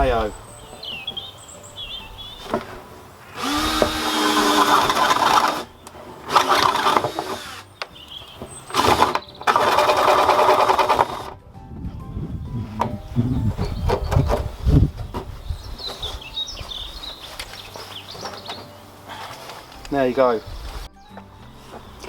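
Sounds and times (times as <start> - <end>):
power drill boring into plastic: 3.4 - 5.7, 6.3 - 7.7, 8.7 - 11.4.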